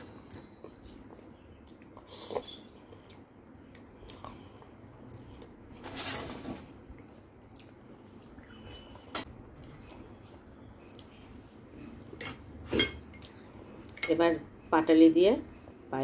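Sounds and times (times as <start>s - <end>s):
person chewing: 0.0s - 5.7s, 6.9s - 12.2s.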